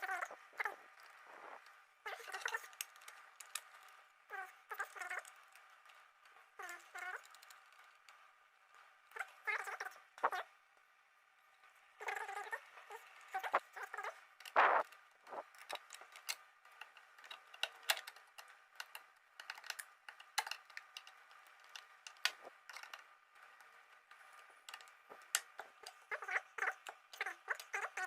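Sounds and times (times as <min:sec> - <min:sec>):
metal tools clicking and tapping: 0:15.4 - 0:23.0.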